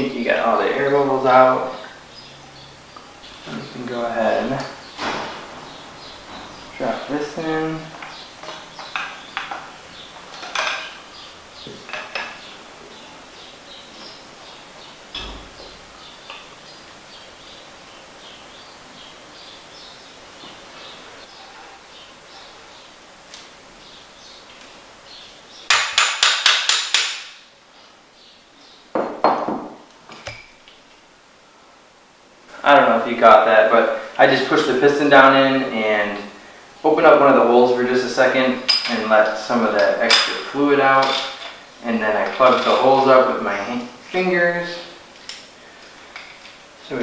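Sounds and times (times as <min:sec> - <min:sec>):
faint birds chirping: 0:00.0 - 0:25.8, 0:27.6 - 0:29.2
heavy metal knock: 0:04.9 - 0:06.8, 0:15.1 - 0:15.8
metal tool knocking on metal parts: 0:25.7 - 0:27.4.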